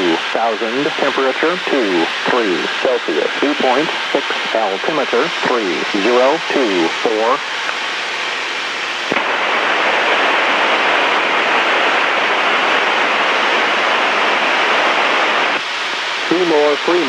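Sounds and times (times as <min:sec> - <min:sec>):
automated weather broadcast voice: 0:00.0 - 0:07.7, 0:16.2 - 0:17.0
radio static hiss: 0:00.0 - 0:17.0.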